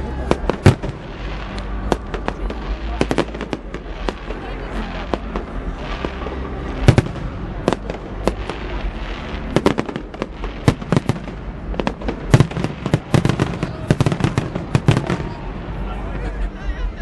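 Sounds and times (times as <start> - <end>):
fireworks bangs and cracks: 0.0 - 15.9.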